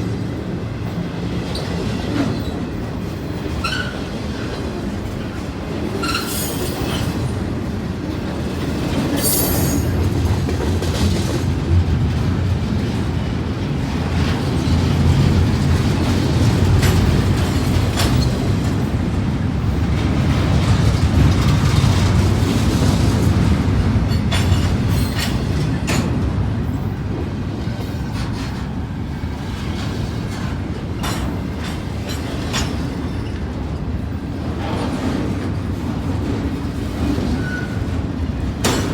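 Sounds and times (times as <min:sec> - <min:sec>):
train wheels rumbling on rail: 0:00.0 - 0:38.9
wheel squeals: 0:03.6 - 0:04.1, 0:06.0 - 0:07.2.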